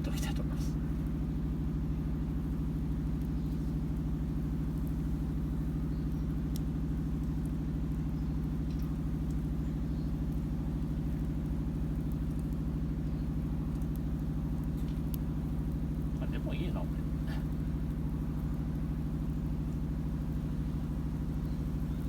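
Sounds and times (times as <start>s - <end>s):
low mechanical hum: 0.0s - 22.0s
faint clicks: 5.9s - 8.0s, 8.6s - 9.5s, 10.3s - 15.8s.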